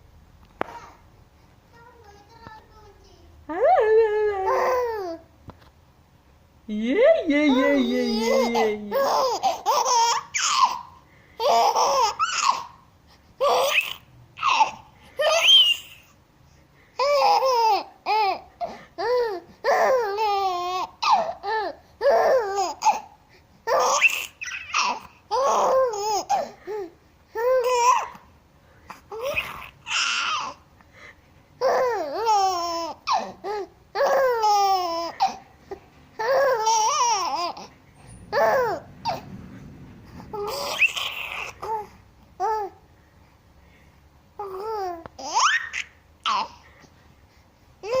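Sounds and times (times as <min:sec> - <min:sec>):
baby babbling and laughing: 0:04.4 - 0:05.3, 0:07.3 - 0:12.8, 0:13.4 - 0:16.1, 0:17.0 - 0:23.1, 0:23.7 - 0:28.2, 0:29.0 - 0:30.6, 0:31.6 - 0:39.3, 0:40.2 - 0:42.8, 0:44.4 - 0:46.7.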